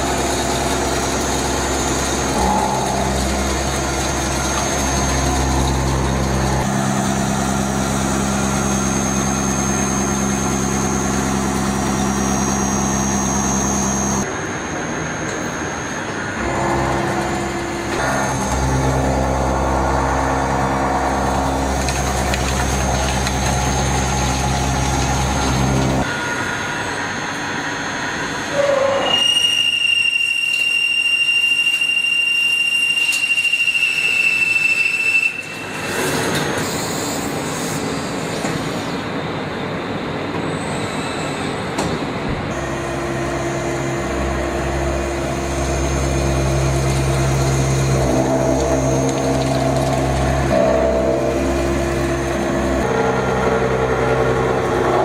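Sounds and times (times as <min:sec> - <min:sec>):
high machine squeal: 0:00.0 - 0:21.8, 0:23.8 - 0:38.3, 0:42.5 - 0:55.0
machine hum: 0:00.0 - 0:28.6, 0:42.4 - 0:55.0.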